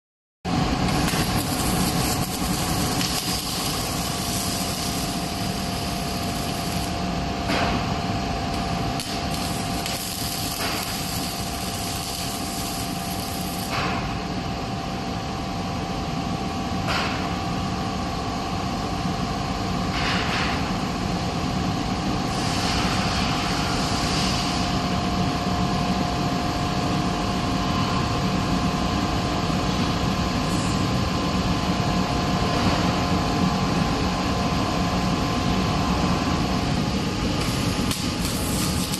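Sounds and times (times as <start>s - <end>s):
machine hum: 0.5s - 15.9s.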